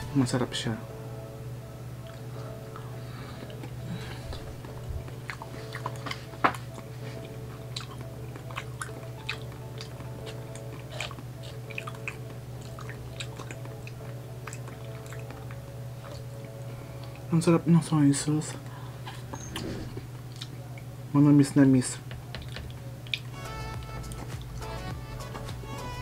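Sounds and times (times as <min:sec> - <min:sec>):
steady low hum: 0:00.0 - 0:26.0
wet chewing of raw fish: 0:02.0 - 0:17.2.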